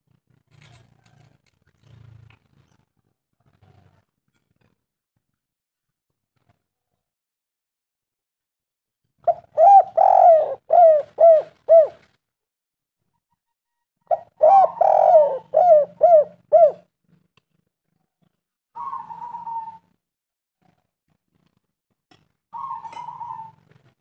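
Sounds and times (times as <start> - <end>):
dove cooing: 9.2 - 12.1, 14.1 - 16.9, 18.8 - 20.0, 22.5 - 23.9.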